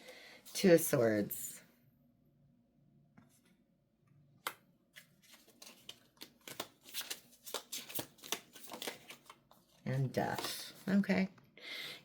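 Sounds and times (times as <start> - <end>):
cards flicking and riffling: 4.4 - 9.6.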